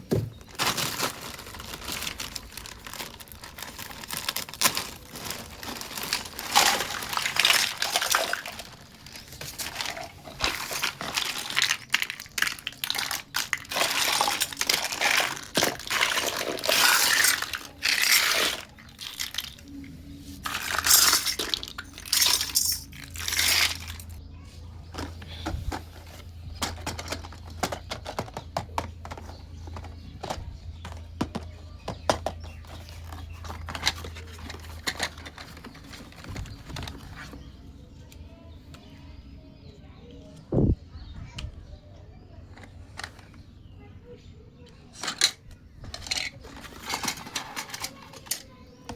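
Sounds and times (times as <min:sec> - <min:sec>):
plastic packaging crinkling: 0:00.0 - 0:19.8, 0:20.4 - 0:24.2, 0:28.8 - 0:37.5
plastic pieces clicking: 0:00.6 - 0:19.8, 0:20.4 - 0:24.2, 0:25.0 - 0:37.4, 0:44.7 - 0:48.9.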